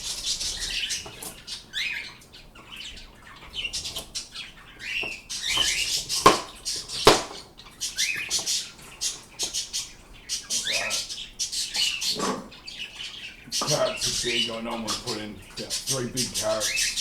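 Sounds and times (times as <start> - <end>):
birds chirping: 0.0 - 17.0
sharp knocks: 5.0 - 7.5.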